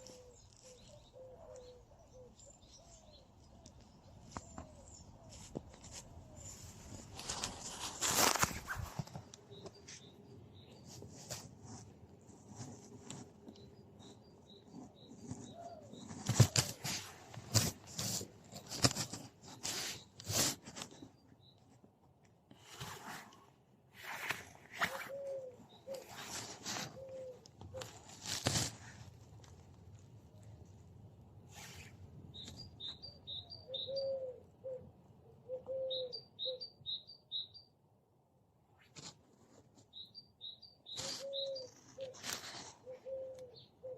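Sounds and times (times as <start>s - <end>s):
low cooing calls: 0.0s - 6.7s, 24.8s - 28.0s, 33.3s - 36.7s, 40.9s - 43.9s.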